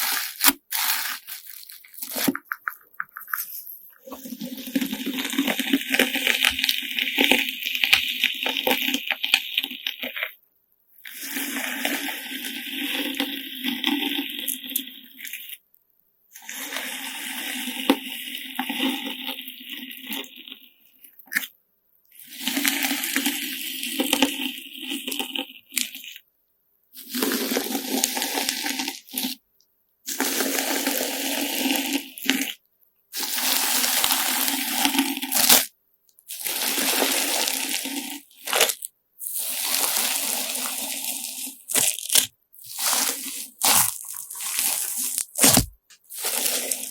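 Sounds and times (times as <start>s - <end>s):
crunchy squishy slime: 0.0s - 10.4s, 21.1s - 21.5s, 33.2s - 46.9s.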